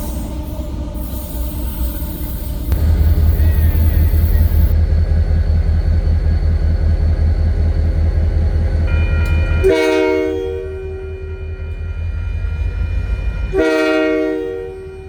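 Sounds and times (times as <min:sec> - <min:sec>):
freight train rumbling: 0:00.0 - 0:15.0
locomotive air horn blast: 0:08.9 - 0:15.0.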